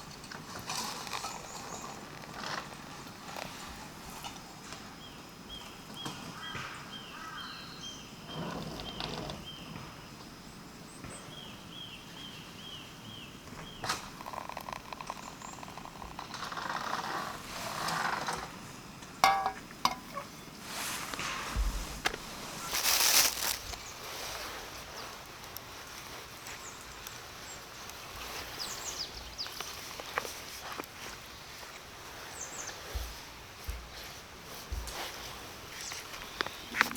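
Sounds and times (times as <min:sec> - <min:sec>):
small bird chirping: 0:11.1 - 0:16.8.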